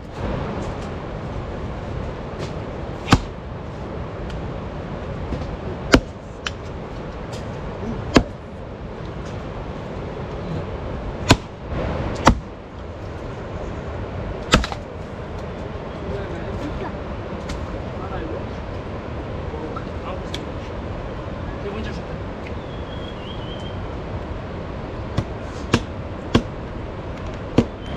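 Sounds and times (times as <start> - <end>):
steady background noise: 0.0 - 27.9
sharp knocks: 3.0 - 3.3, 12.2 - 12.5.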